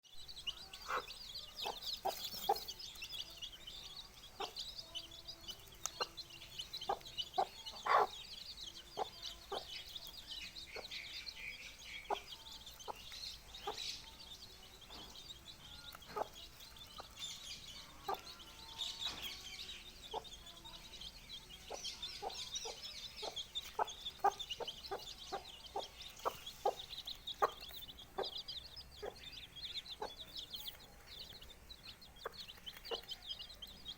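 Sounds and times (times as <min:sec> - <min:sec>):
chicks peeping: 0:00.2 - 0:33.9
hen clucking: 0:00.5 - 0:10.1, 0:21.7 - 0:30.8.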